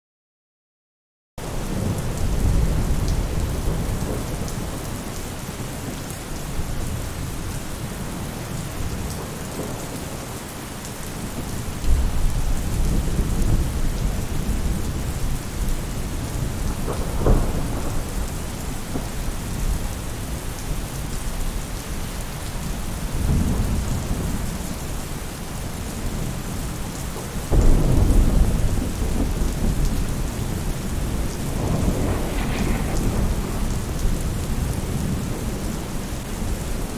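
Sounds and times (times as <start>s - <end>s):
rain falling on a roof: 1.4s - 36.9s
thunder rumbling: 1.7s - 5.4s, 11.2s - 20.9s, 27.4s - 36.9s
sharp thunder crack: 16.7s - 18.3s, 27.5s - 35.7s.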